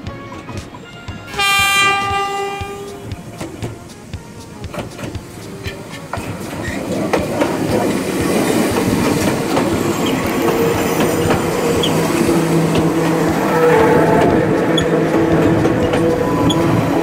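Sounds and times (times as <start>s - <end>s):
wheels clicking over rail joints: 1.4s - 17.0s.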